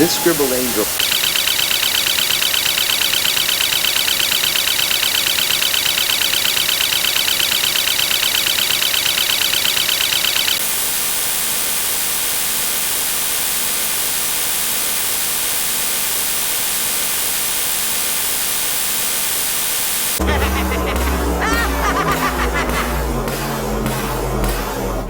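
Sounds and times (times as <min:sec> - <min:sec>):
static hiss: 0:00.0 - 0:02.1, 0:10.6 - 0:22.6
pulsing high electronic buzz: 0:00.0 - 0:25.0
music: 0:20.2 - 0:25.0.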